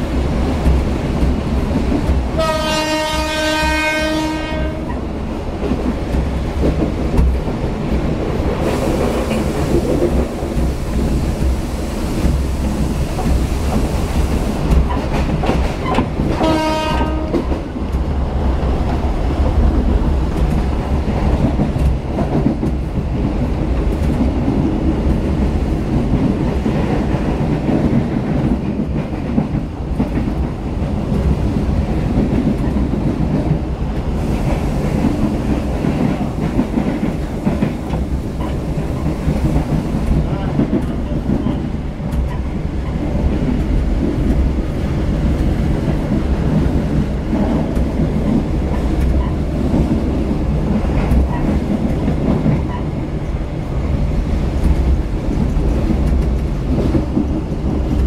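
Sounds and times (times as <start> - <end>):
train low rumble: 0.0 - 58.0
locomotive horn blast: 2.4 - 5.0, 16.4 - 17.4.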